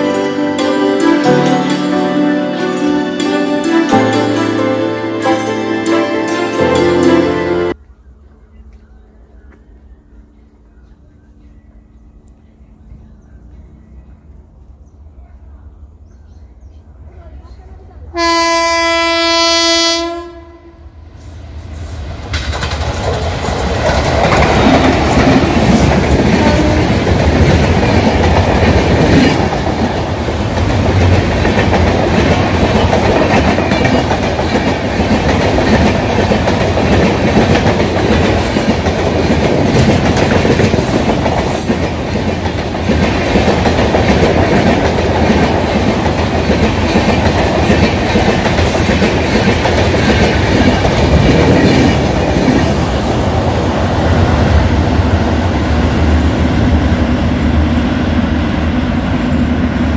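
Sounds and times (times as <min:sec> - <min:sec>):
train rumbling over bridge: 0:00.0 - 0:59.9
locomotive horn: 0:18.1 - 0:21.0, 0:26.3 - 0:27.0
wheels clickety-clack: 0:22.3 - 0:52.8.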